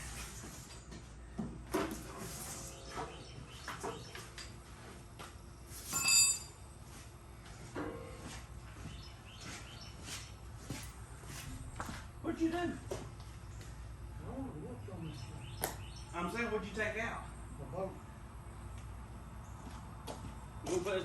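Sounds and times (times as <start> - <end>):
ringing metallic clang: 5.9 - 6.6, 7.8 - 8.3.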